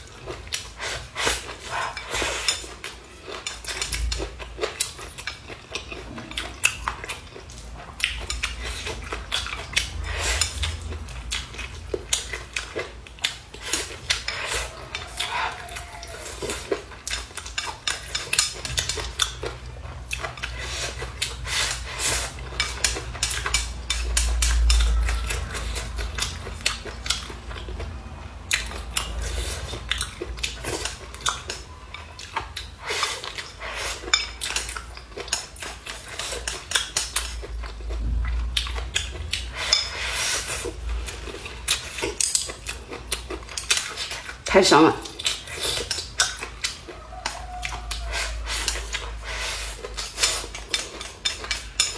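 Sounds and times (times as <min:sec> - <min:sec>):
chewing: 0:00.0 - 0:51.9
utensils clicking against dishes: 0:12.1 - 0:27.3, 0:45.1 - 0:51.9.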